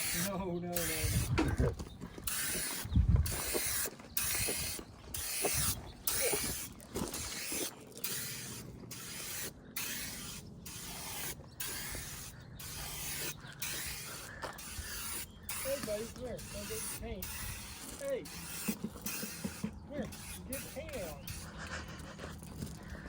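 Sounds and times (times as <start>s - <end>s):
spray paint can hissing: 0.0s - 1.4s, 2.3s - 22.2s.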